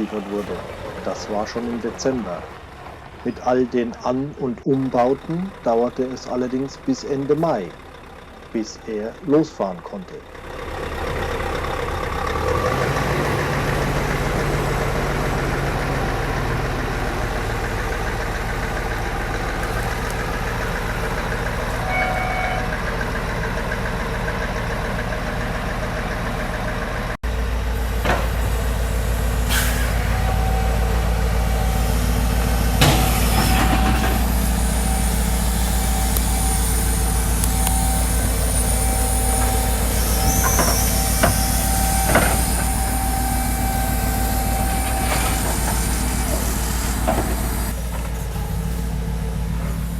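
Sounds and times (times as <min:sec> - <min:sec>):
diesel truck engine running: 0:00.0 - 0:49.9
short sharp hisses: 0:29.5 - 0:30.0.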